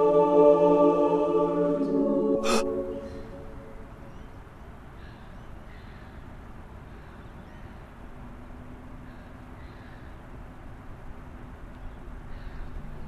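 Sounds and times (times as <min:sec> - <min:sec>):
low background ambience: 0:00.0 - 0:13.0
faint short bird calls: 0:04.1 - 0:07.8, 0:09.0 - 0:10.2, 0:11.8 - 0:13.0.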